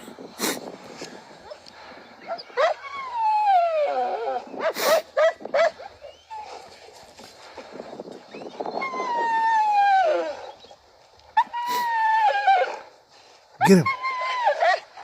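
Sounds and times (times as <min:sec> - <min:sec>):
dogs whining and yelping: 0:01.4 - 0:06.8, 0:08.3 - 0:13.0, 0:13.8 - 0:15.0
dog yipping: 0:02.2 - 0:06.6
dog barking: 0:04.6 - 0:05.9.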